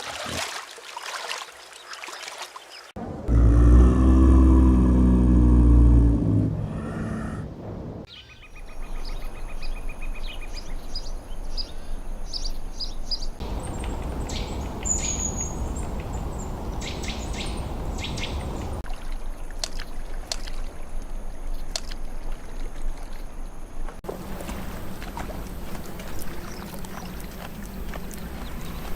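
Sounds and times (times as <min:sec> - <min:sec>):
wild birds chirping: 0:02.8 - 0:18.8
bird trill: 0:13.4 - 0:18.8.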